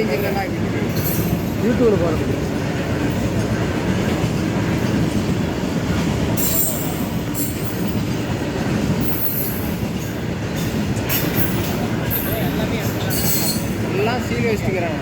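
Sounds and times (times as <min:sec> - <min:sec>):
freight train wagons rumbling: 0:00.0 - 0:15.0
train wheels squealing: 0:00.2 - 0:01.6, 0:06.3 - 0:08.3, 0:08.9 - 0:14.1.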